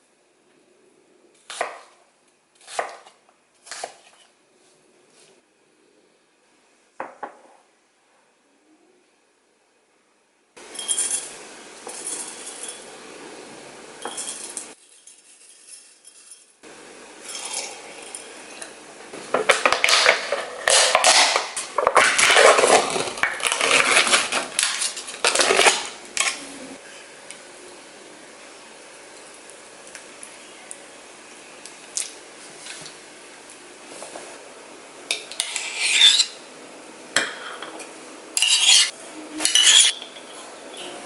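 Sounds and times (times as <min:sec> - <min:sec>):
dishes and cutlery clinking: 0:10.7 - 0:12.9, 0:14.0 - 0:16.6, 0:37.2 - 0:40.5.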